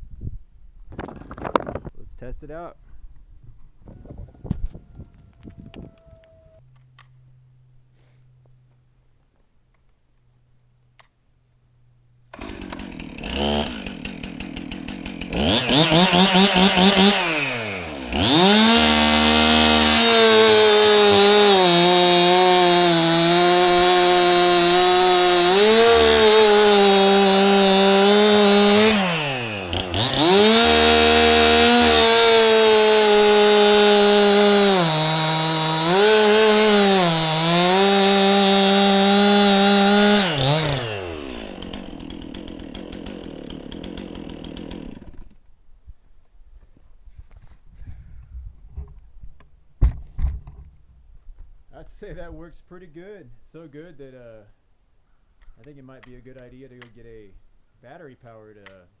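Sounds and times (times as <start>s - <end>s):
chainsaw revving and cutting: 12.3s - 45.4s.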